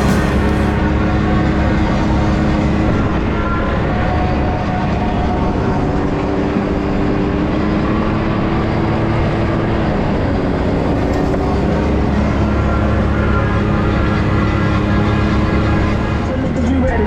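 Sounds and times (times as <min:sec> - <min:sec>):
atv engine running: 0:00.0 - 0:03.1.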